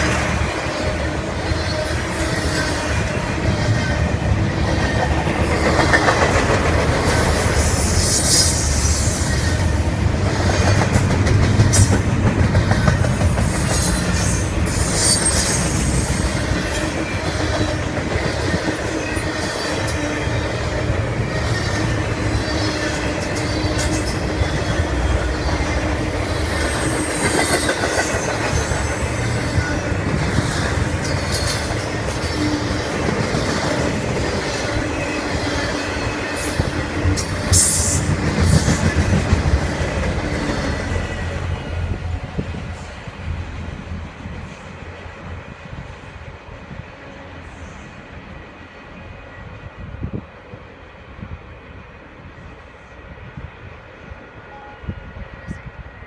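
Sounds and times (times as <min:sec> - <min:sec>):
freight train rolling past: 0:00.0 - 0:56.0
wheels clicking over rail joints: 0:04.1 - 0:07.6, 0:10.3 - 0:15.8.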